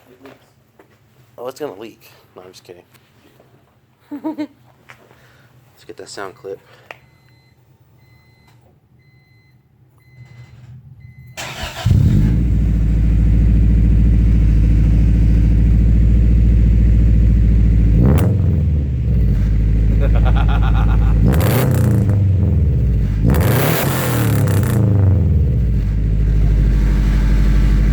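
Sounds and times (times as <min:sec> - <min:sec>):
car engine cranking: 0:11.4 - 0:27.9
engine revving: 0:11.4 - 0:27.9
car engine running loudly: 0:11.8 - 0:27.9.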